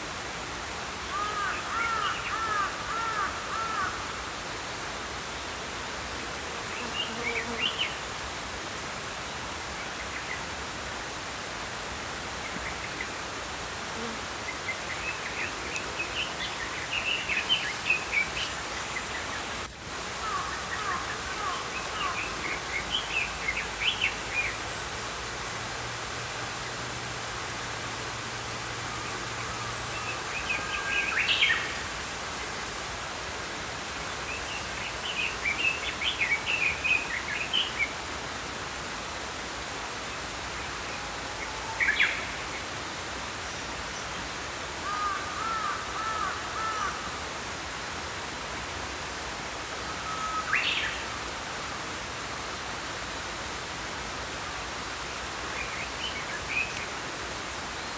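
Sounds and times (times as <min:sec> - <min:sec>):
flowing stream: 0:00.0 - 0:06.5, 0:07.3 - 0:57.9.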